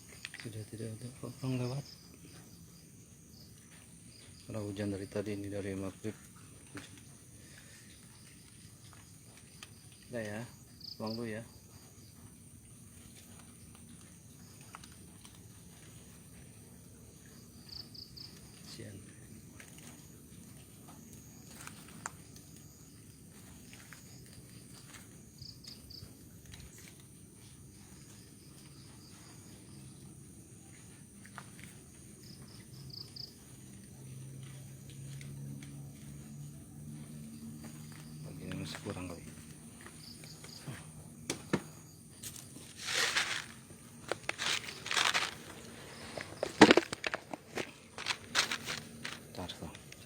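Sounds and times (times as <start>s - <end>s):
crickets and insects chirping: 0.0s - 50.0s
plastic bag rustling: 42.2s - 49.4s.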